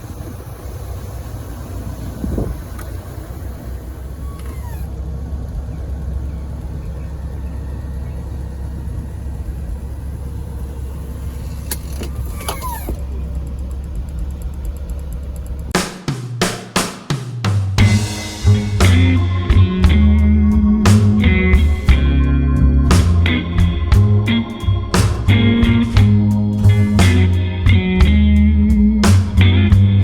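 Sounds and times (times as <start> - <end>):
car engine and road noise: 0.0 - 30.0
faint clicks and squeaks: 4.1 - 4.9, 11.3 - 15.7.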